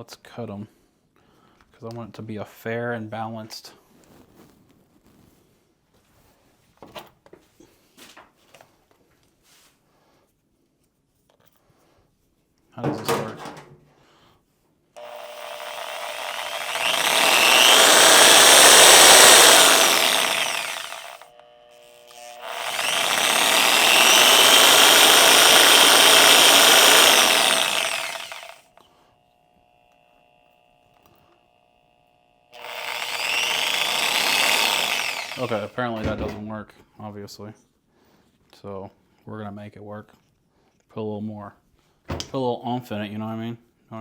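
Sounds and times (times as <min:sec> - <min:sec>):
small electric cutting tool running: 0:15.0 - 0:36.0.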